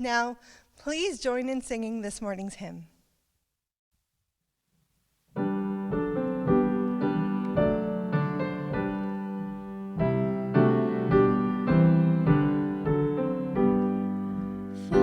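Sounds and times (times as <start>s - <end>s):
piano playing a hymn: 5.4s - 15.0s.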